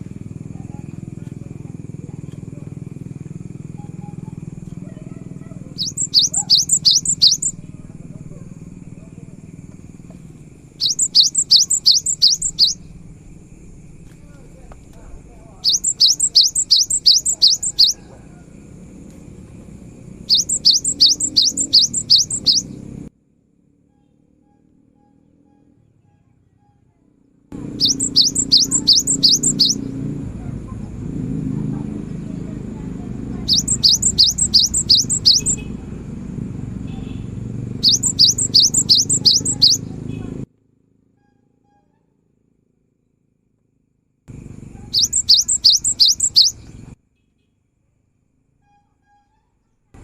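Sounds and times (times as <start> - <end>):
steady low hum: 0.0 - 23.1, 27.5 - 40.5
bird singing high rising notes: 5.6 - 7.9, 10.7 - 13.2, 15.6 - 18.2, 20.0 - 23.0, 27.6 - 30.1, 33.3 - 35.7, 37.7 - 39.9, 44.9 - 46.9.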